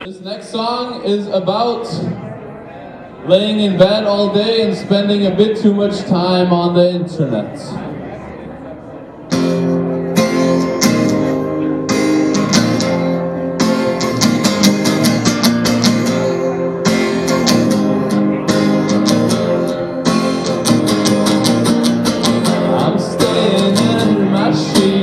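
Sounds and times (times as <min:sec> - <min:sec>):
guitar strumming chords: 0:09.3 - 0:25.0.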